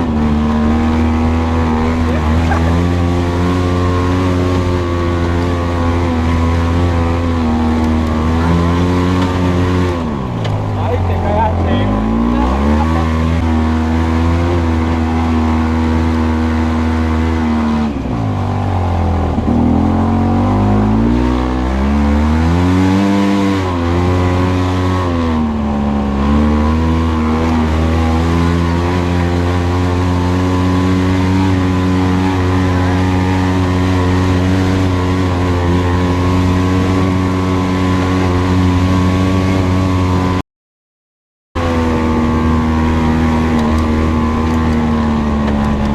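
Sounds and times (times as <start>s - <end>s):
vehicle engine running: 0.0s - 40.4s, 41.6s - 45.9s.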